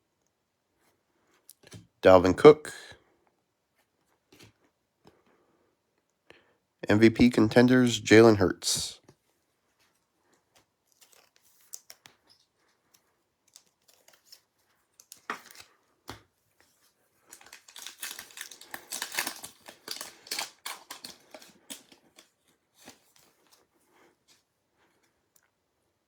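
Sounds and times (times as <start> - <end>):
cards clicking and tapping: 15.0 - 16.3, 17.3 - 23.0
foil wrapper crinkling and tearing: 17.2 - 23.3.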